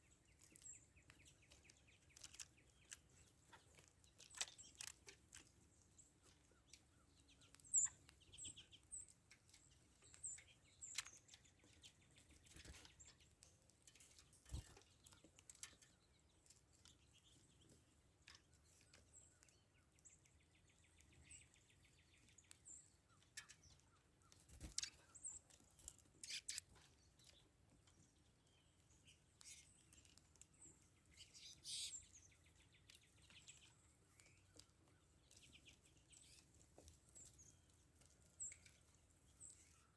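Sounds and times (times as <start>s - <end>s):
songbirds chirping: 0.0s - 39.9s
buzzy bird trills: 26.2s - 26.7s, 31.1s - 32.1s.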